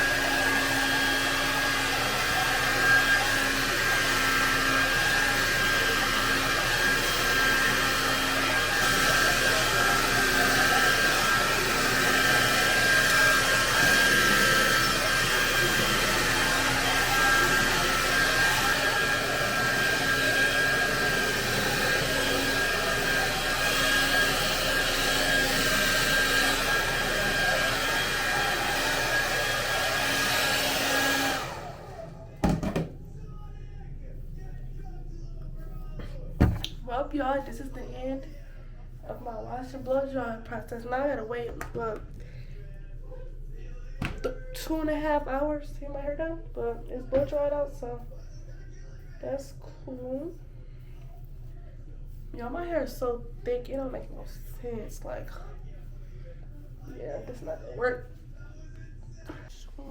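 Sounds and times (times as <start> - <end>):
hair dryer running: 0.0 - 33.0.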